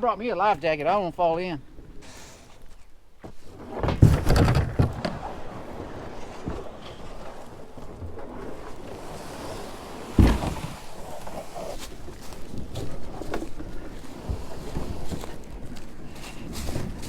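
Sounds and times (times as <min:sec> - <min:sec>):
handling knocks: 0:03.7 - 0:05.4, 0:10.1 - 0:11.0
heavy thump: 0:10.1 - 0:10.8.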